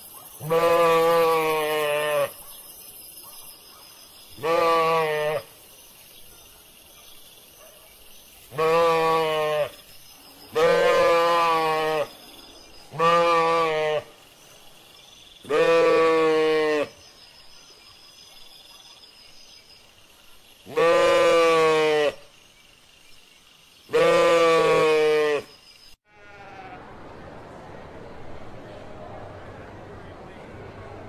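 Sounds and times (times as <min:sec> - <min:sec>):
sheep bleating: 0:00.4 - 0:02.3, 0:04.4 - 0:05.5, 0:08.6 - 0:09.7, 0:10.6 - 0:12.1, 0:13.0 - 0:14.1, 0:15.5 - 0:16.9, 0:20.7 - 0:22.2, 0:23.9 - 0:25.5, 0:26.1 - 0:26.8.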